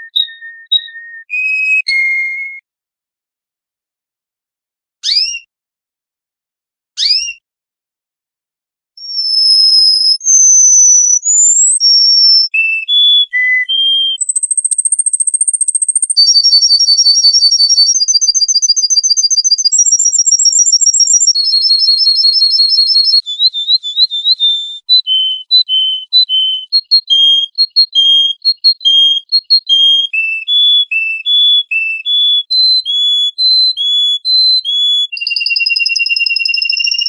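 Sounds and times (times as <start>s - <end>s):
songbird singing: 0.0s - 2.5s, 9.0s - 37.0s
bird whistled notes: 0.0s - 2.6s, 5.0s - 5.5s, 7.0s - 7.4s, 9.0s - 37.0s.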